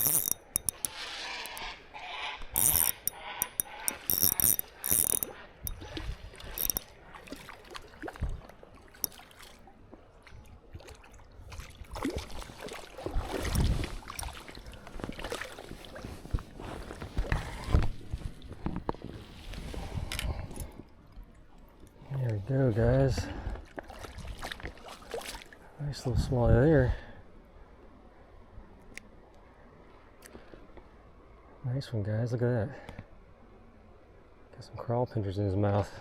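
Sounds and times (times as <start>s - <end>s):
fishing reel being cranked: 0.0s - 6.9s
fishing reel drag clicking: 0.0s - 6.9s.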